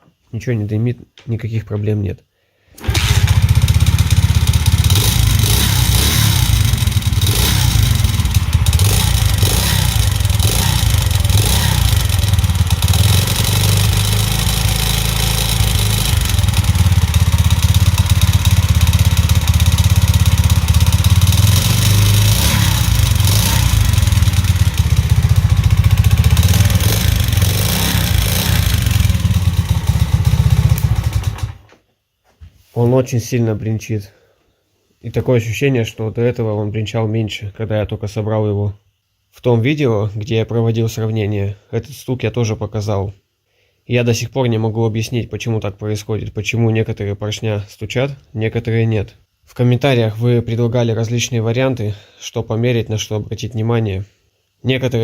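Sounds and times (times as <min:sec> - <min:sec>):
metallic engine rattle: 0:02.8 - 0:31.6
moped engine running: 0:02.8 - 0:31.7.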